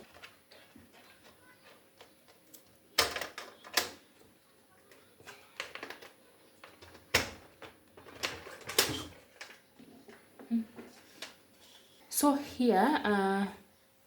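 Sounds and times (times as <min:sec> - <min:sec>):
clicks and knocks of handling: 0:00.0 - 0:04.3, 0:04.9 - 0:11.4.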